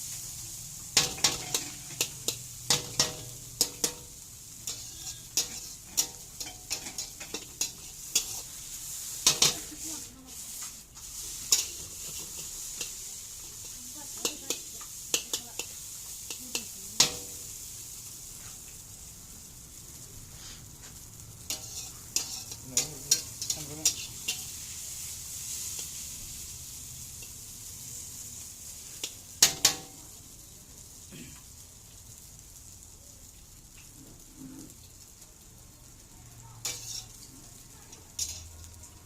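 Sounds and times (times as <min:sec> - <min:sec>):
food sizzling in a pan: 0:00.0 - 0:39.0
utensil clattering against pan: 0:04.7 - 0:08.4, 0:09.2 - 0:09.8, 0:36.6 - 0:37.2, 0:38.0 - 0:38.5.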